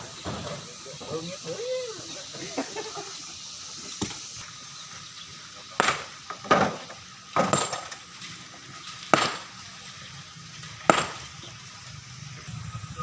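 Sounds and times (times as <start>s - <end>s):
hand tools striking stone: 5.8s - 6.8s, 7.4s - 8.0s, 9.0s - 9.6s, 10.9s - 11.3s.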